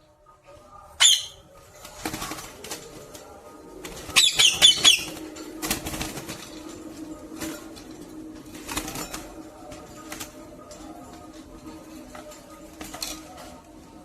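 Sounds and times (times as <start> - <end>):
parrot squawking: 1.0 - 1.4, 4.2 - 5.2.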